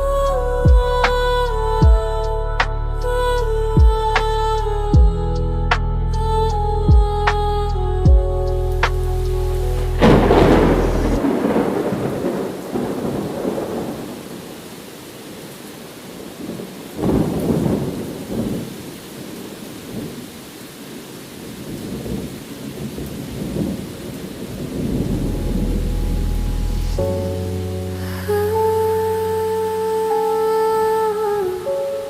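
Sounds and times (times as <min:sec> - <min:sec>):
steady rain: 0:05.7 - 0:32.0
thunder rumbling: 0:06.1 - 0:14.7, 0:16.1 - 0:19.0, 0:21.6 - 0:29.4.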